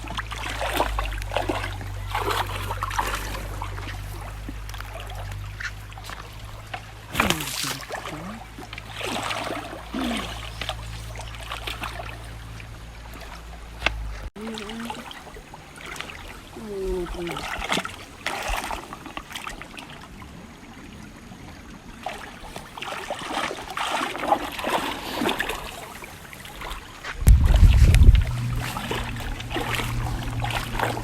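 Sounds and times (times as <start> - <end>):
steady low hum: 0.0 - 18.1, 25.4 - 31.0
river water splashing and trickling: 0.0 - 31.0.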